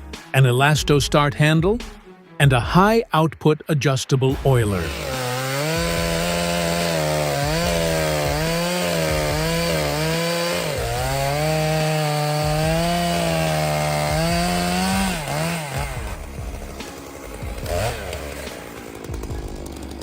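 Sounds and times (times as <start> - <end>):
chainsaw cutting wood: 4.3 - 20.0.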